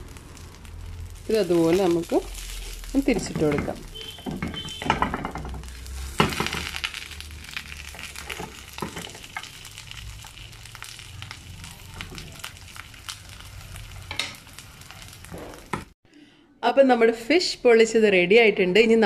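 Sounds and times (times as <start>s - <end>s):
fish sizzling and popping in oil: 0.0s - 16.0s
wooden spatula knocking on pan: 3.1s - 6.7s, 8.2s - 9.5s.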